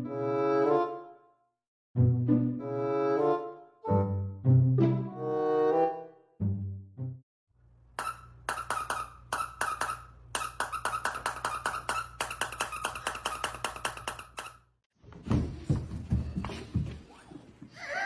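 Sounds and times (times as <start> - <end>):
rapid short squeaks: 8.0 - 14.7.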